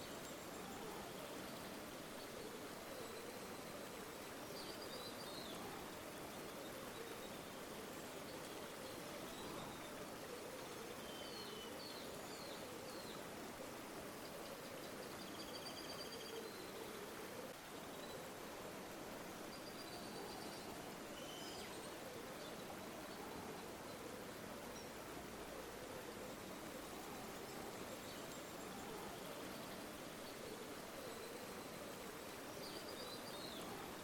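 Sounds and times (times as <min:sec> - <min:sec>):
river water flowing: 0:00.0 - 0:34.0.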